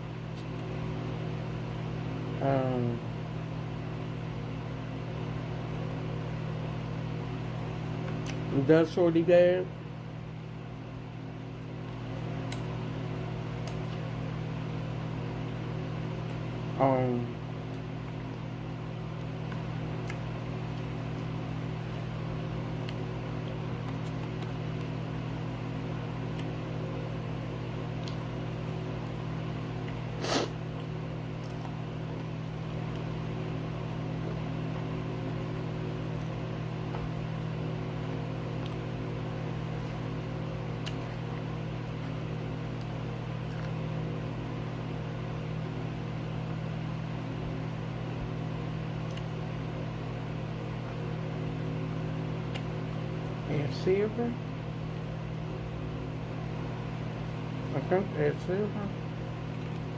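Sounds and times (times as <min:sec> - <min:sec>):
electrical hum: 0:00.0 - 0:59.9.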